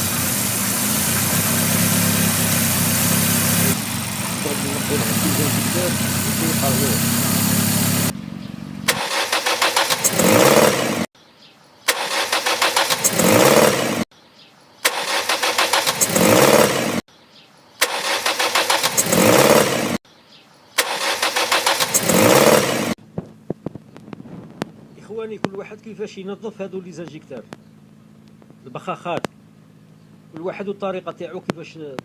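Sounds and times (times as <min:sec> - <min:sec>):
engine cranking on starter: 0:00.0 - 0:08.1, 0:08.8 - 0:11.1, 0:11.9 - 0:14.0, 0:14.8 - 0:17.0, 0:17.8 - 0:20.0, 0:20.8 - 0:23.0.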